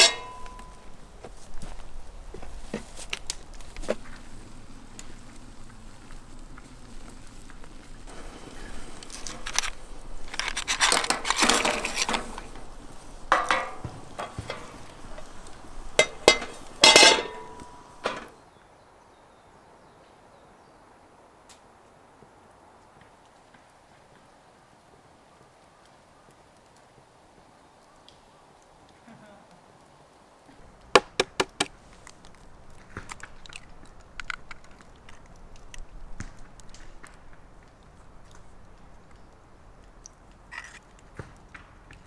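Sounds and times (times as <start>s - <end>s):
utensils and dishes clinking: 0.0s - 1.0s, 8.2s - 18.3s.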